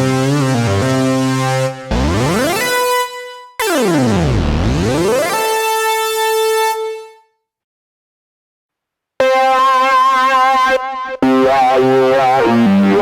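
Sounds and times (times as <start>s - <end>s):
synthesizer stepping notes: 1.9s - 2.8s.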